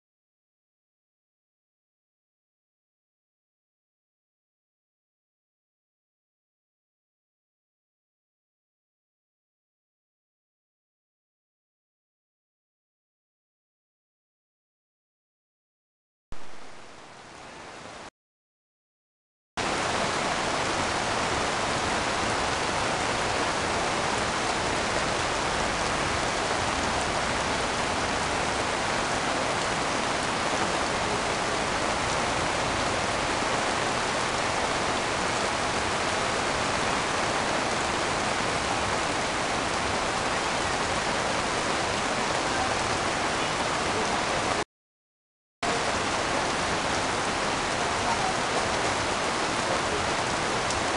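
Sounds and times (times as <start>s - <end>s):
heavy rain pouring: 16.4s - 18.1s, 19.6s - 44.6s, 45.6s - 50.9s.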